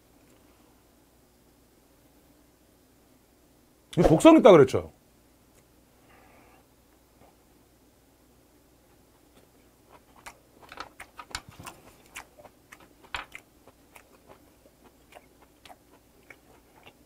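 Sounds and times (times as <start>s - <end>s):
wet chewing clicks and smacks: 9.3s - 17.0s.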